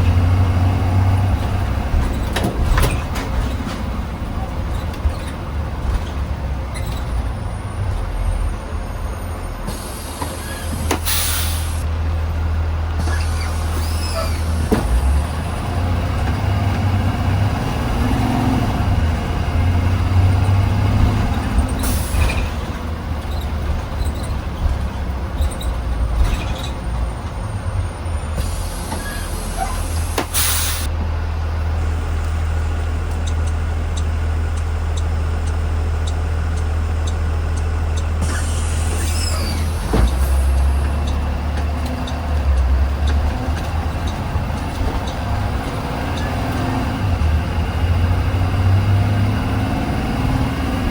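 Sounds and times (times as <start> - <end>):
bus engine humming: 0.0 - 50.9
air brake hisses: 9.7 - 11.8, 28.4 - 30.9, 38.2 - 40.6.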